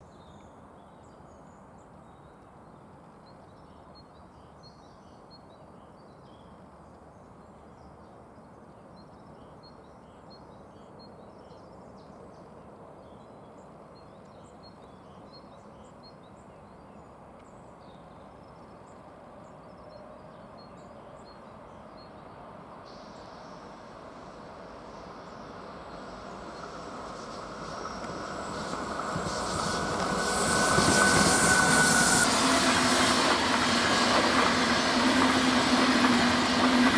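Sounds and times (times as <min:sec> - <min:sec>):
high-speed train approaching: 0:20.0 - 0:36.9.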